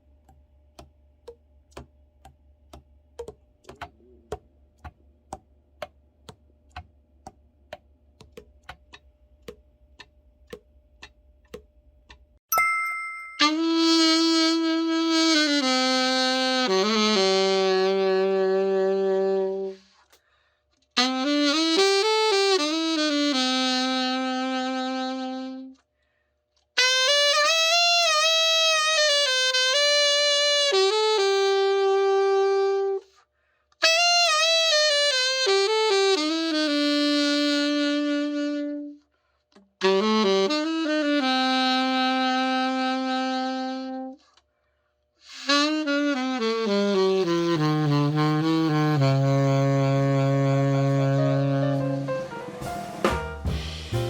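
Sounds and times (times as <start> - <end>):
alto saxophone melody: 13.4 - 20.2, 21.0 - 25.8, 26.8 - 33.2, 33.8 - 44.4, 45.2 - 54.0.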